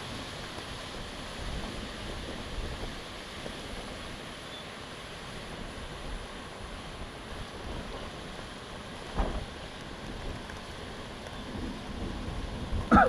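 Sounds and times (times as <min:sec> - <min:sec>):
wind buffeting microphone: 0:00.0 - 0:04.3, 0:05.5 - 0:13.0.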